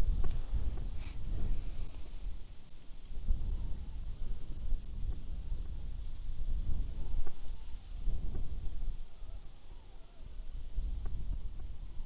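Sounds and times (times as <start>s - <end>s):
steady hiss: 0.0s - 9.2s
wind buffeting microphone: 0.0s - 12.0s.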